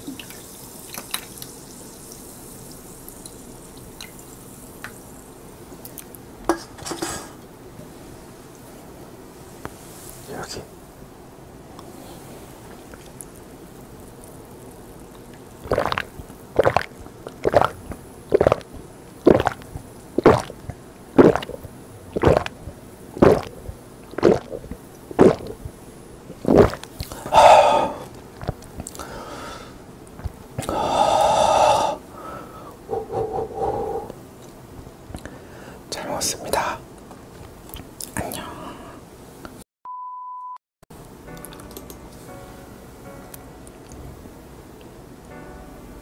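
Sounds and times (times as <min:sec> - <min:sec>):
person gulping a drink: 0:15.6 - 0:25.7, 0:26.3 - 0:29.1, 0:30.2 - 0:31.9
person exhaling: 0:27.1 - 0:28.2, 0:29.0 - 0:29.8, 0:30.6 - 0:34.2, 0:35.2 - 0:35.8.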